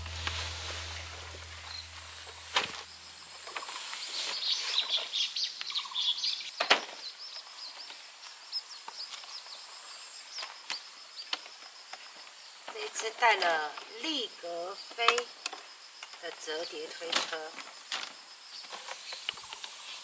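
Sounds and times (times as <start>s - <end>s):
background music: 0.0s - 2.9s
high insect buzz: 0.0s - 4.7s, 18.6s - 20.0s.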